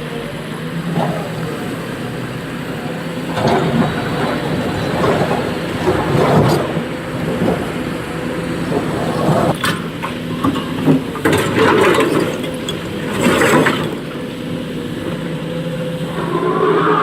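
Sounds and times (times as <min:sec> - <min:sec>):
excavator diesel engine running: 0:00.0 - 0:17.0
rock and bucket clatter: 0:03.3 - 0:07.9, 0:08.6 - 0:14.2.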